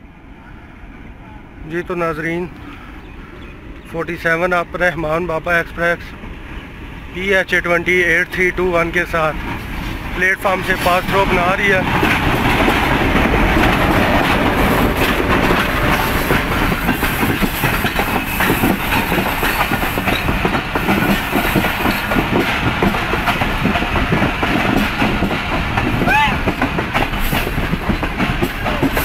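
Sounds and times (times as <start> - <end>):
train wheels clattering over rail joints: 7.6 - 29.0.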